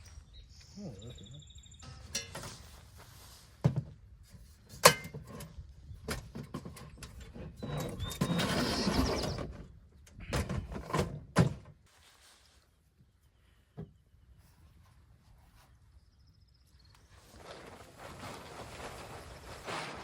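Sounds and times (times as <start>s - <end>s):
rustling and scraping: 1.9s - 9.6s, 11.8s - 13.1s, 17.0s - 20.0s.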